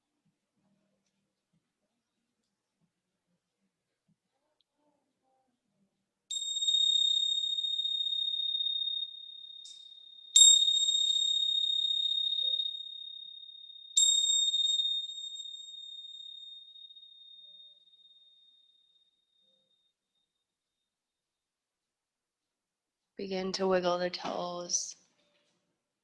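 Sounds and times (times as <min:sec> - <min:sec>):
small high-pitched bell ringing: 0:06.3 - 0:20.4.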